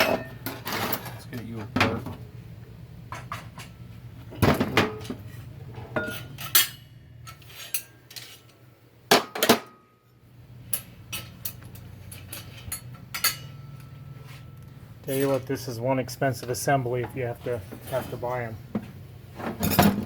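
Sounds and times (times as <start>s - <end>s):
steady low hum: 9.8s - 20.0s.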